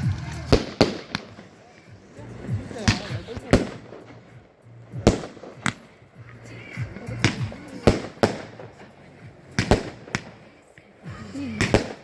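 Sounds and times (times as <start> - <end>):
fireworks bangs: 0.0 - 10.6, 11.6 - 12.0.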